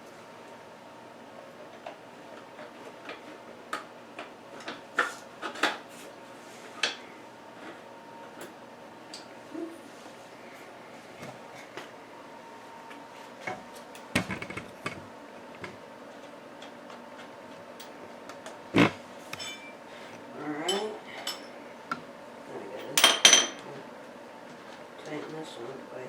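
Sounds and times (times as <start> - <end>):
metal tools clinking and knocking: 19.4 - 19.7.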